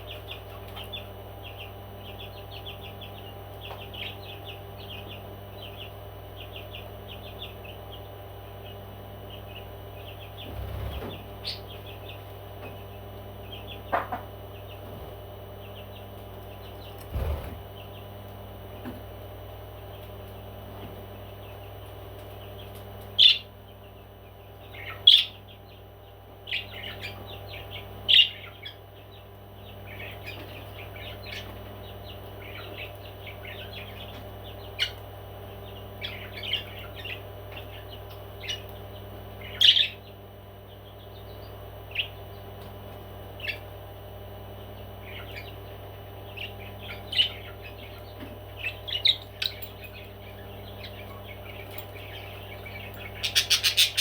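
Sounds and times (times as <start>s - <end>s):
parrot chirping: 52.1s - 54.0s.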